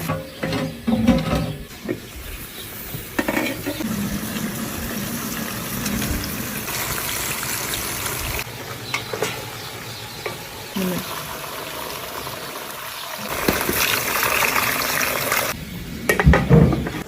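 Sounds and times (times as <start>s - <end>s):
rush of pouring liquid: 11.1s - 15.6s.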